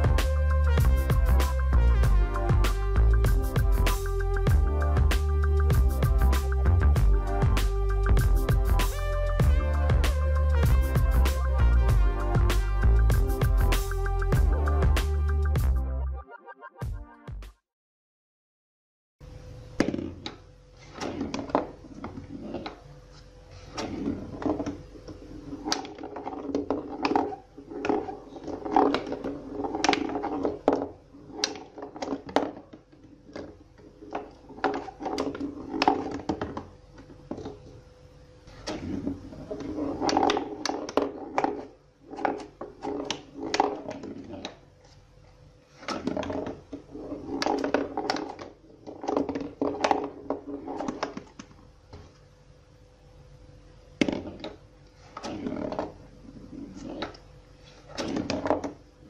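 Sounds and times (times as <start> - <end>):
ball rolling and rattling: 19.8 - 37.8, 38.5 - 44.7, 45.7 - 52.1, 54.0 - 58.9.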